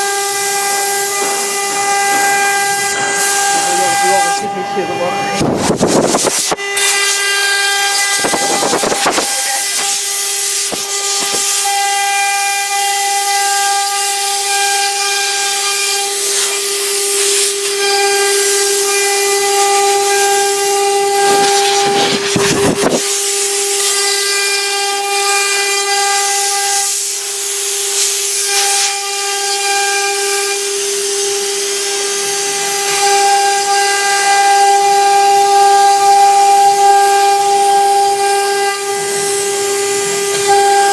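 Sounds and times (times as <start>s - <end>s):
harsh cutting noise: 0.0s - 30.5s
router spindle whining: 0.0s - 40.9s.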